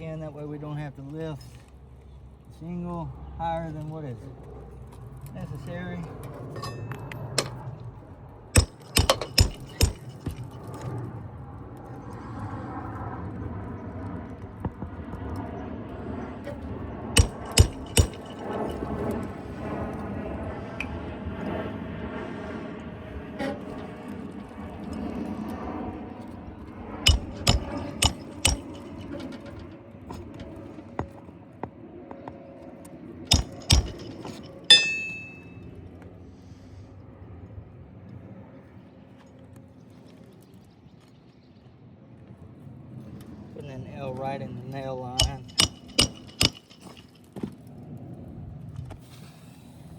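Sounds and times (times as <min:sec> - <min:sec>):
hammer blows on roof: 0:08.6 - 0:10.7, 0:17.2 - 0:19.1, 0:27.1 - 0:31.2, 0:33.3 - 0:35.4, 0:45.2 - 0:47.1.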